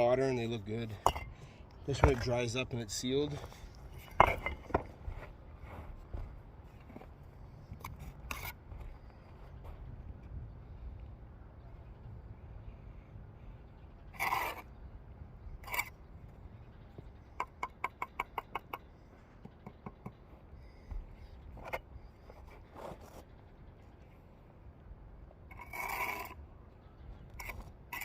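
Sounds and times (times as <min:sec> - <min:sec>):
trowel tapping and scraping brick: 0:03.3 - 0:04.9, 0:17.4 - 0:21.0.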